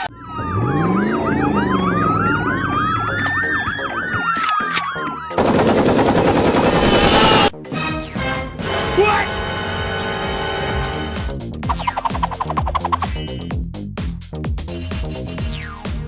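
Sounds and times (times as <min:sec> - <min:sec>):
police sirens wailing: 0:00.0 - 0:05.5.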